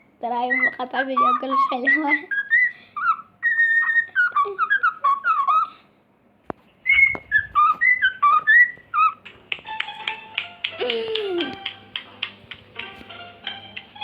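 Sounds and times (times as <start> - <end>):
bird whistling a tune: 0.4 - 5.8, 6.8 - 9.2.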